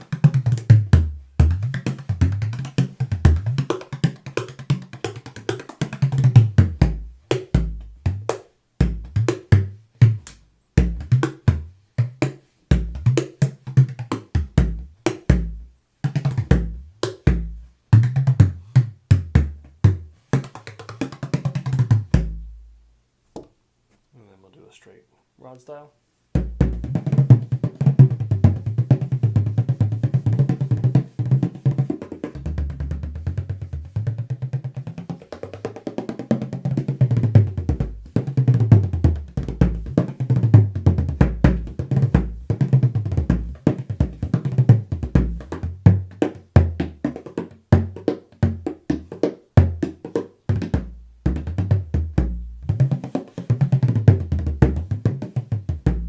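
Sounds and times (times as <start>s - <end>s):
frame drum played with a tipper: 26.4s - 35.3s.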